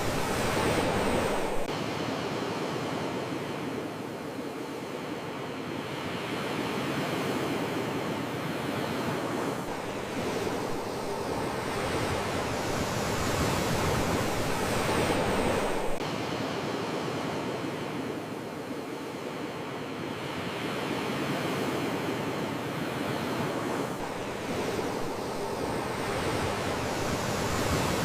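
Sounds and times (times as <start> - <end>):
surf washing ashore: 0.0 - 28.0.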